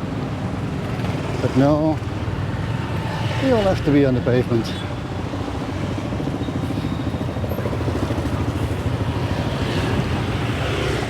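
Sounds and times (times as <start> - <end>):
small motorcycle engines passing: 6.3 - 11.0.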